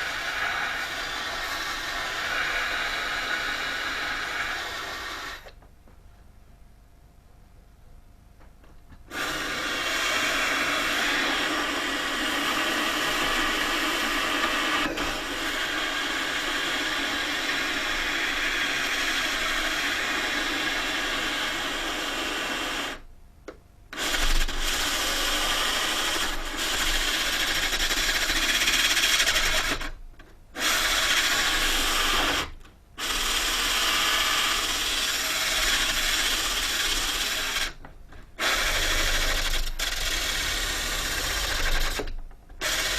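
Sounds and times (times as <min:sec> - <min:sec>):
wood being sanded: 0:00.0 - 0:05.3.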